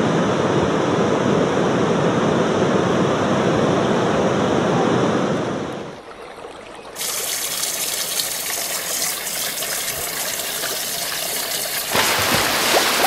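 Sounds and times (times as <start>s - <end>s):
whitewater rapids rushing: 11.9s - 13.0s.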